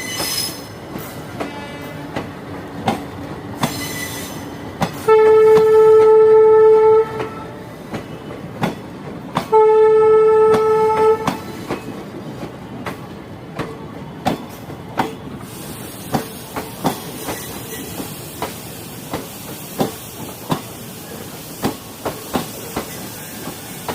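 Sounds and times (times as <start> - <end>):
train wheels clicking on rail joints: 0.0 - 23.9
train horn blasts: 1.4 - 2.2, 5.0 - 7.7, 9.5 - 11.6.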